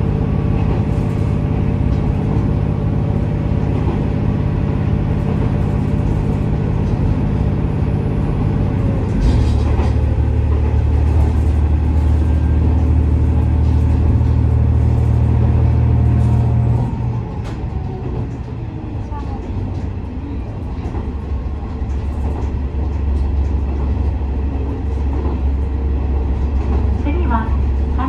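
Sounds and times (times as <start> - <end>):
rail running noise: 0.0 - 28.0
railcar diesel engine: 0.0 - 28.0.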